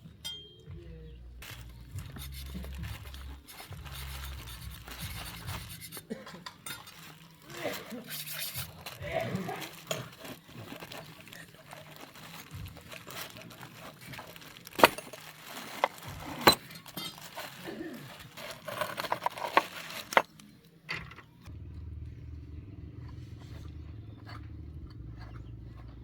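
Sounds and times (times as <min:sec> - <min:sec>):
metal tools clanking: 0:00.2 - 0:00.8, 0:01.4 - 0:09.0, 0:09.6 - 0:21.3.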